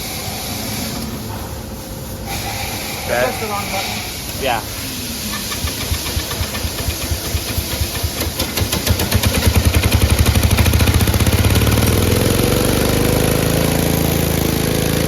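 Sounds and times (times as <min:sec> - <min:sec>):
lawn tractor engine starting: 0:05.3 - 0:15.0.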